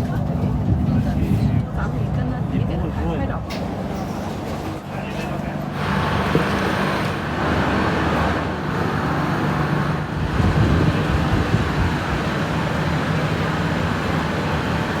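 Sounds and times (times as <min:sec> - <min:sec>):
high-speed train running: 0:00.0 - 0:15.0.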